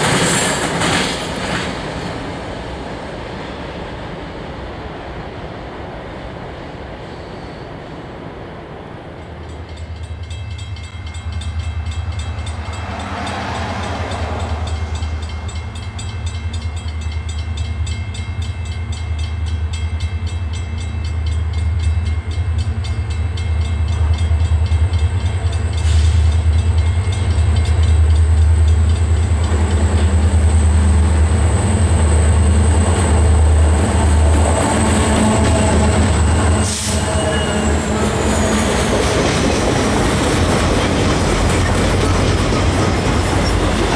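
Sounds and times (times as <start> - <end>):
boxcars rolling: 0.0 - 4.5, 23.9 - 43.9
diesel locomotive engine drone: 0.0 - 43.9.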